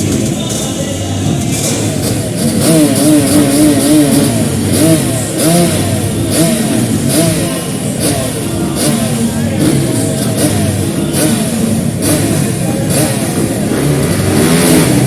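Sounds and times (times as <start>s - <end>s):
dirt bikes revving: 0.0s - 15.0s.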